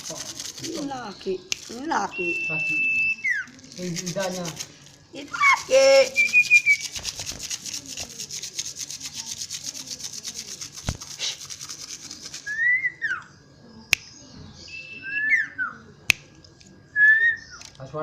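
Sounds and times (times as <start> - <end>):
rapid rasping rubbing noise: 0.0 - 1.8, 3.7 - 4.8, 5.5 - 12.5
bird whistling call: 2.1 - 3.5, 5.4 - 7.0, 12.4 - 13.3, 14.6 - 15.8, 17.0 - 17.7.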